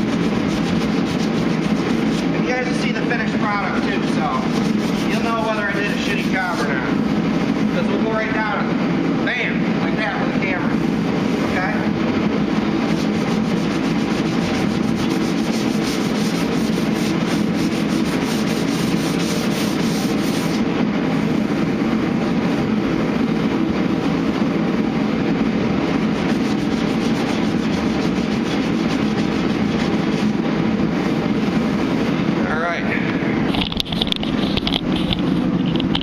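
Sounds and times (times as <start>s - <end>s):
sandpaper scratching on filler: 0.0s - 7.0s, 12.7s - 20.7s, 25.9s - 30.5s, 33.7s - 36.0s.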